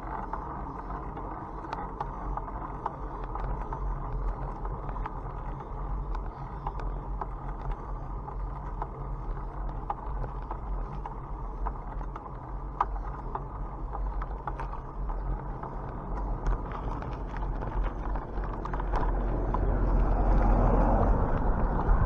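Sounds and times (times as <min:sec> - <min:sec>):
bicycle tyres rumbling: 0:00.0 - 0:22.0
small clicks and rattles: 0:00.0 - 0:22.0
wind on microphone: 0:16.4 - 0:22.0.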